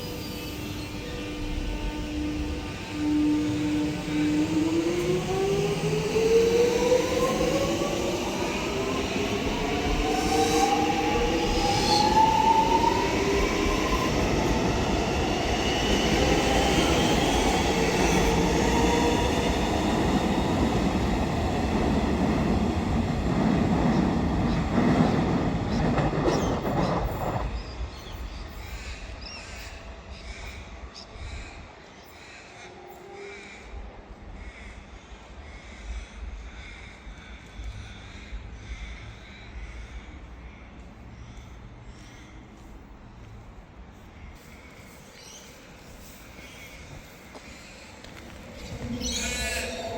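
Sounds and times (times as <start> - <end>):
electric train motors whining: 0.0 - 21.4
wheels rumbling on rail: 0.0 - 49.9.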